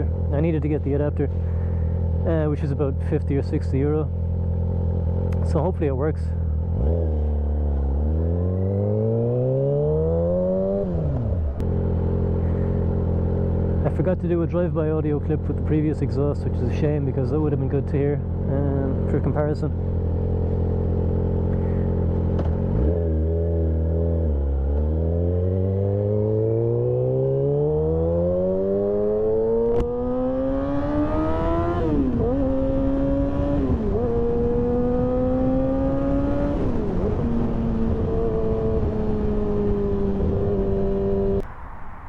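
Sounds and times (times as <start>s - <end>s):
motorcycle engine accelerating: 0.0s - 41.6s.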